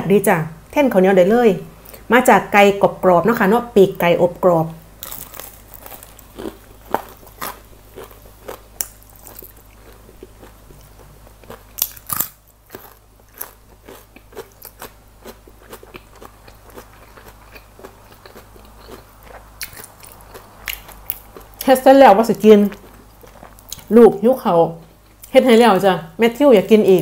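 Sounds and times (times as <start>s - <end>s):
crunchy chewing: 5.0s - 21.7s, 22.5s - 23.9s.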